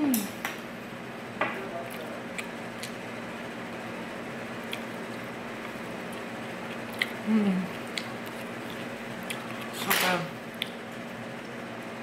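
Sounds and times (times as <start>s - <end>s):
person humming: 0.0s - 0.4s, 7.2s - 7.8s
electric fan humming: 0.0s - 12.0s.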